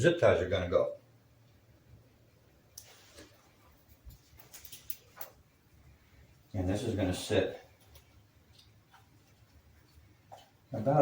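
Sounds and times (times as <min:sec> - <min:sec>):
electrical tape rustling: 0:02.7 - 0:11.0.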